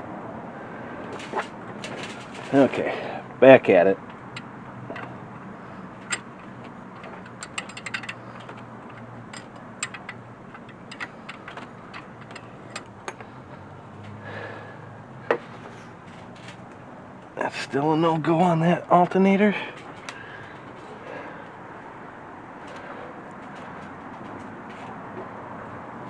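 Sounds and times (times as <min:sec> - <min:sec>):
metal tools clinking: 0:04.3 - 0:05.2, 0:06.0 - 0:13.4
socket ratchet clicking: 0:06.0 - 0:06.3, 0:07.0 - 0:13.2.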